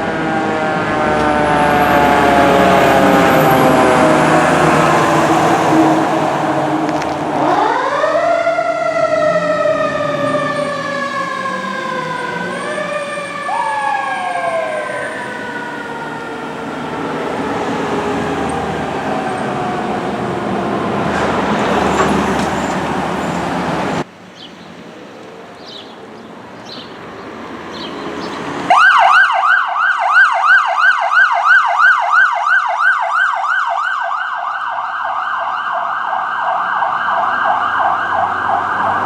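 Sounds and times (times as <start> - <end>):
fire truck siren: 0.0 - 24.1, 28.6 - 39.0.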